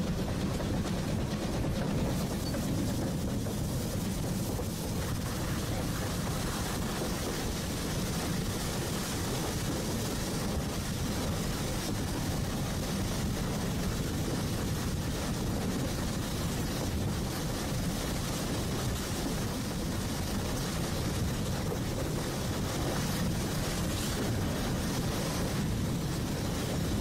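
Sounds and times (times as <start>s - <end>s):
train wheels rumbling on track: 0.0s - 27.0s.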